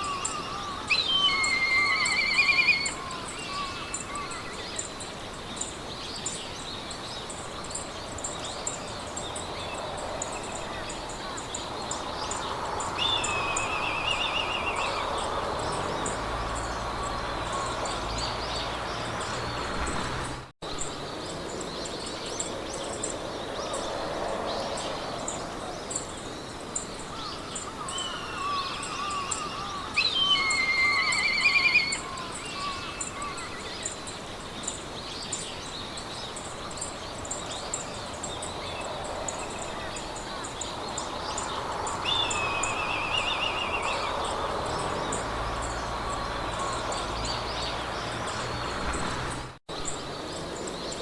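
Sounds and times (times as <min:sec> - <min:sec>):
birds singing trilled phrases: 0:00.0 - 0:04.9, 0:12.3 - 0:19.5, 0:27.3 - 0:34.0
wind in grass: 0:00.0 - 0:51.0.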